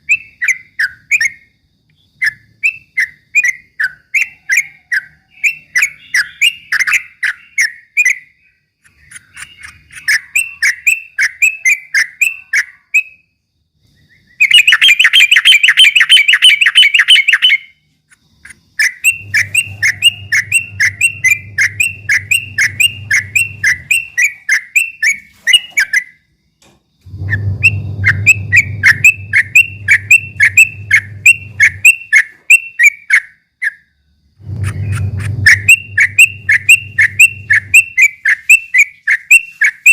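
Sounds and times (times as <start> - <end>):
bird chattering song: 0.0 - 13.2, 13.9 - 26.2, 27.1 - 33.8, 34.5 - 39.9
low hum: 19.1 - 24.2, 27.0 - 32.0, 34.4 - 38.0.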